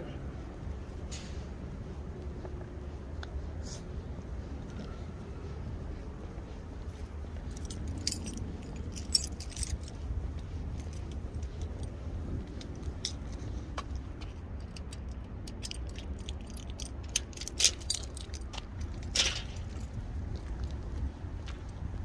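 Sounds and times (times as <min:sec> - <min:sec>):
keys jingling: 0:07.4 - 0:13.5, 0:14.2 - 0:20.0.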